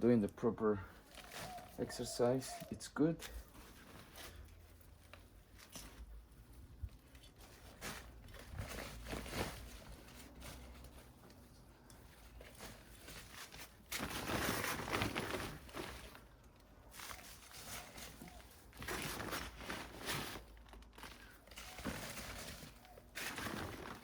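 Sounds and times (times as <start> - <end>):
potting soil rustling and scraping: 0.0 - 24.0
bag being handled: 1.0 - 2.7, 12.1 - 24.0.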